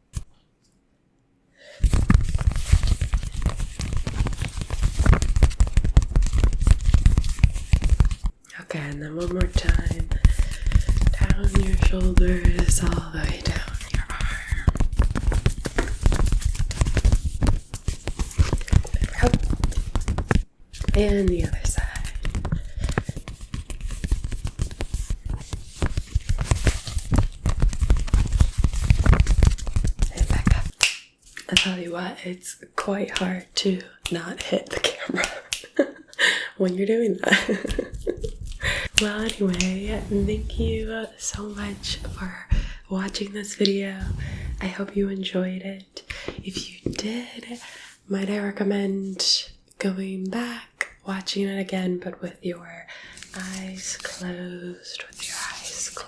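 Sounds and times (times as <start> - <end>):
hands rubbing on microphone: 39.2 - 42.4, 44.0 - 44.8.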